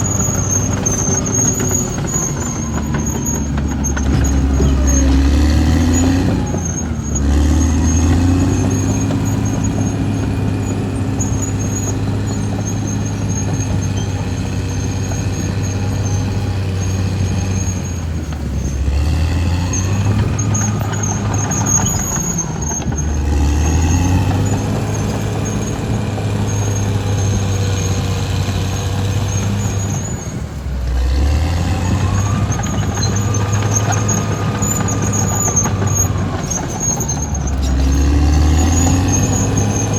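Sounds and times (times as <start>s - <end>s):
bulldozer diesel engine: 0.0s - 39.9s
high squeal of steel tracks: 0.0s - 39.9s.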